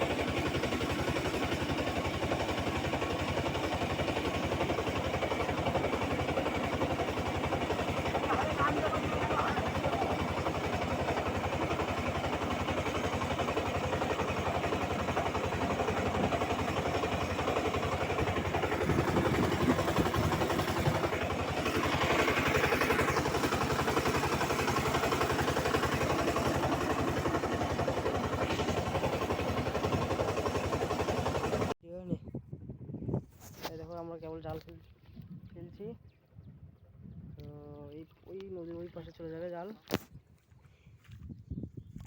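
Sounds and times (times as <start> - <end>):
small engine running: 0.0 - 31.8.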